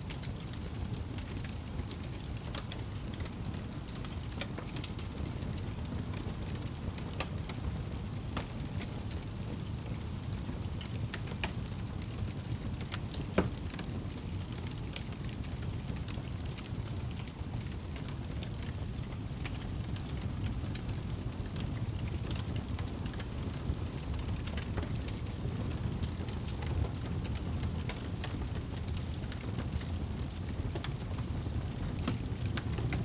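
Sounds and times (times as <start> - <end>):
fire crackles and pop: 0.0 - 33.0
fire low rumble: 0.0 - 33.0.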